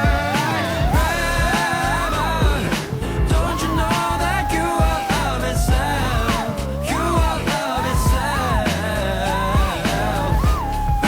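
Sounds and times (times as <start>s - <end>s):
pop song with beat: 0.0s - 11.0s.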